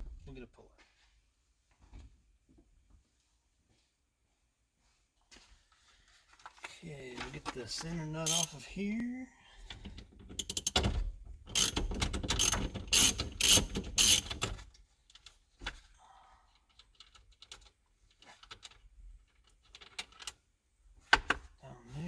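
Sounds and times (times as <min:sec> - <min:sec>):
socket ratchet clicking: 0:08.2 - 0:08.5, 0:11.5 - 0:14.5.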